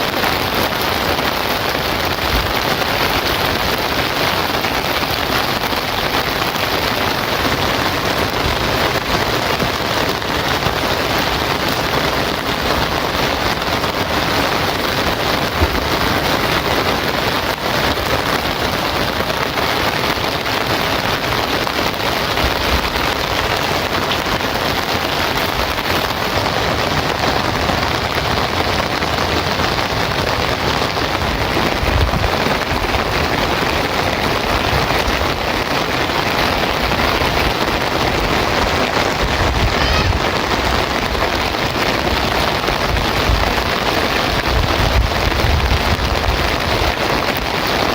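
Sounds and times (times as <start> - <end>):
heavy rain falling: 0.0 - 47.9
low thuds: 15.4 - 16.6.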